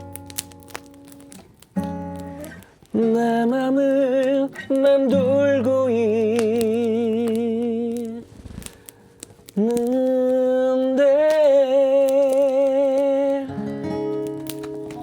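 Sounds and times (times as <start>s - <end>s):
man singing with vibrato: 2.9s - 8.4s, 9.6s - 13.8s.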